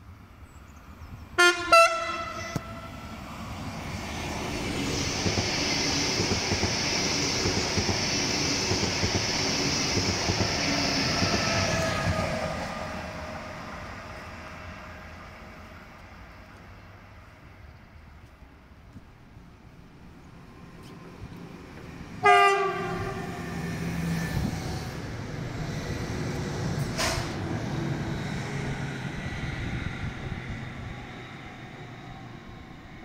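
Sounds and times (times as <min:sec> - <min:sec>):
train horn blasts: 0:01.4 - 0:03.1, 0:22.2 - 0:23.5
train wheels rushing on rails: 0:02.3 - 0:16.6, 0:20.6 - 0:33.0.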